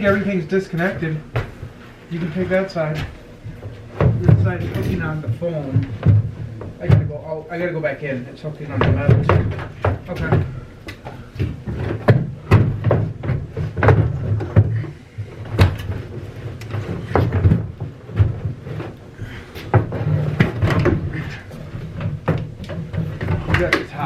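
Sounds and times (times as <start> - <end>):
bus fitting knocking and banging: 11.4 - 19.0.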